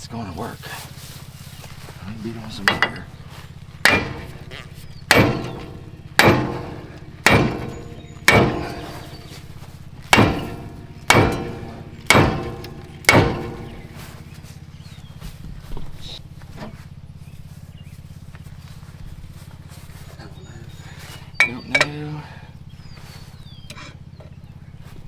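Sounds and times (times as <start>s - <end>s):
hammer striking metal wheel: 2.6s - 3.2s, 3.8s - 14.5s, 21.4s - 22.1s.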